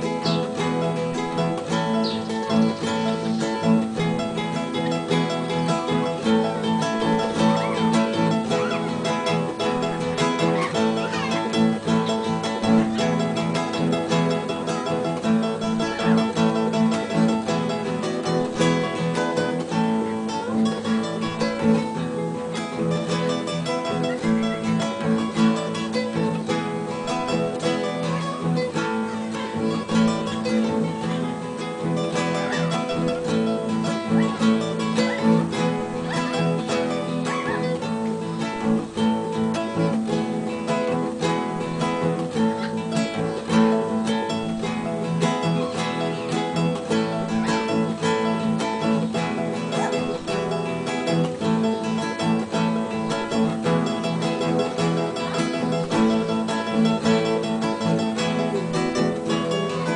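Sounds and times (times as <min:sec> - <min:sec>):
fingerstyle acoustic guitar: 0:00.0 - 0:59.9.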